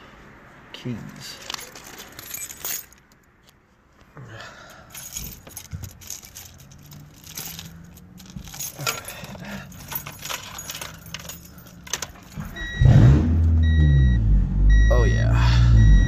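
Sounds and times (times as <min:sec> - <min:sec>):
keys jangling: 0:01.4 - 0:03.3, 0:04.8 - 0:12.8.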